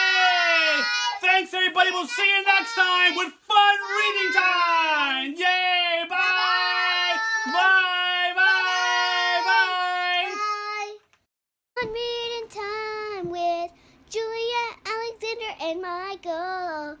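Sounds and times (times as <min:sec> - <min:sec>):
children singing: 0:00.0 - 0:05.0, 0:06.0 - 0:10.6.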